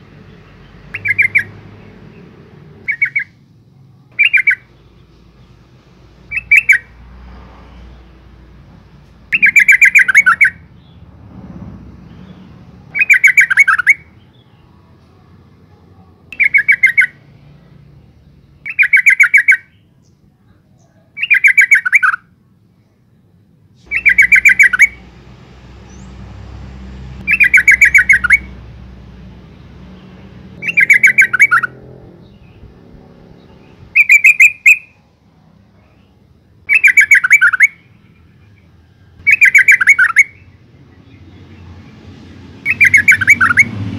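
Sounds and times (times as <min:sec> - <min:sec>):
bird chattering call: 0:00.9 - 0:01.6, 0:02.9 - 0:03.4, 0:04.1 - 0:04.8, 0:09.3 - 0:10.7, 0:12.9 - 0:14.0, 0:16.4 - 0:17.2, 0:23.9 - 0:25.1, 0:27.2 - 0:28.6, 0:30.6 - 0:32.6, 0:33.9 - 0:34.9, 0:36.7 - 0:37.8, 0:39.2 - 0:40.4, 0:42.7 - 0:43.7.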